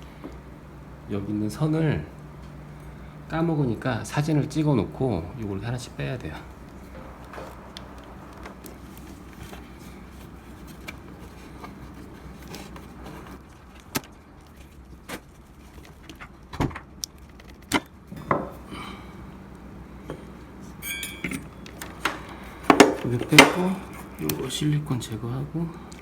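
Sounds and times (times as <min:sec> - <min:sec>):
faint steady hum: 0:00.0 - 0:26.0
clicks and knocks of handling parts: 0:20.1 - 0:24.4.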